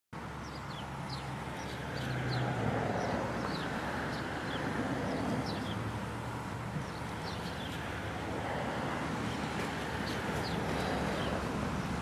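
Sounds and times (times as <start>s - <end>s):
small birds chirping: 0.4s - 5.9s, 6.8s - 7.9s, 10.0s - 12.0s.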